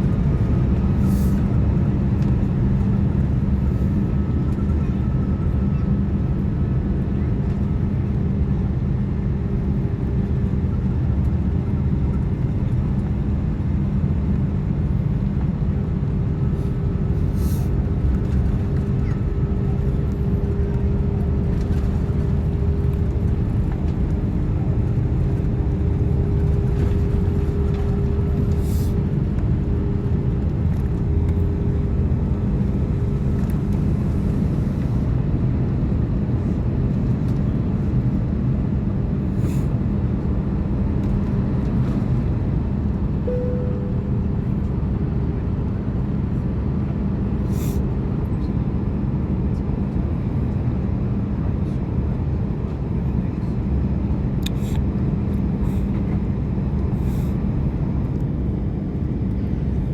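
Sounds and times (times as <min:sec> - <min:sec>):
airliner cabin engine rumble: 0:00.0 - 0:59.9
brief cabin tone: 0:43.2 - 0:44.8.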